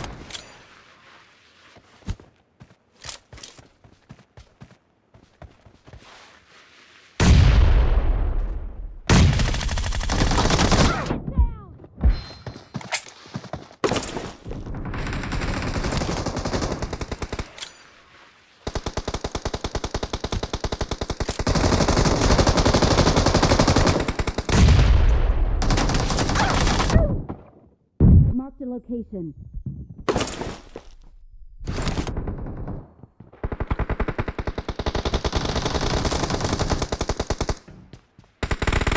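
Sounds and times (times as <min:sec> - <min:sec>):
video game automatic gunfire: 0:31.7 - 0:37.6, 0:38.4 - 0:38.9.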